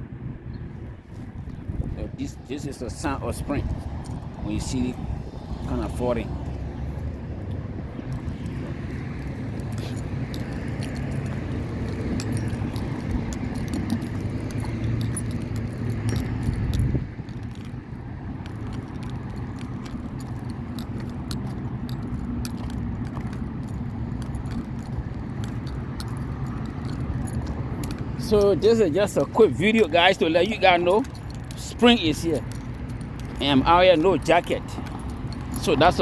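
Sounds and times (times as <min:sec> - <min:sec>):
small clicks and jingles: 0:01.1 - 0:36.0
low outdoor rumble: 0:01.9 - 0:36.0.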